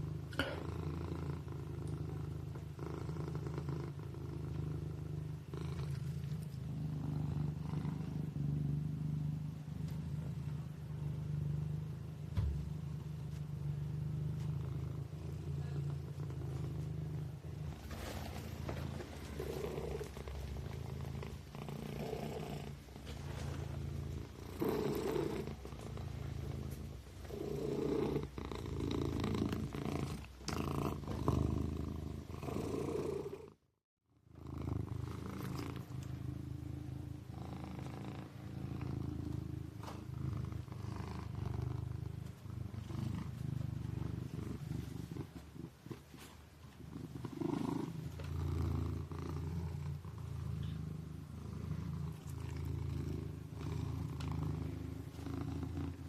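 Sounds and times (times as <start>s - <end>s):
kitten purring: 0.0s - 56.0s.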